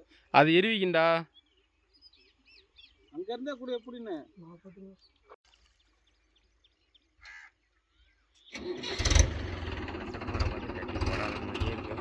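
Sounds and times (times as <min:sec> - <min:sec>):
crow cawing: 0:07.2 - 0:07.6
tractor diesel engine running: 0:08.5 - 0:12.0.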